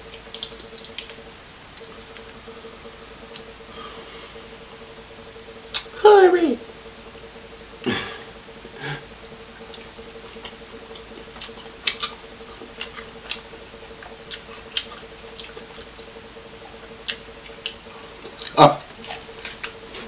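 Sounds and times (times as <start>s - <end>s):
wet chewing and smacking: 0.0s - 4.5s, 9.4s - 20.0s
faint steady hum: 0.0s - 20.0s.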